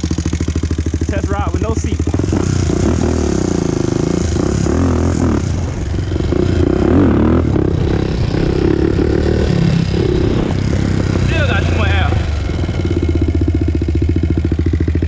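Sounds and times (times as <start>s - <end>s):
atv engine revving: 0.0s - 15.0s.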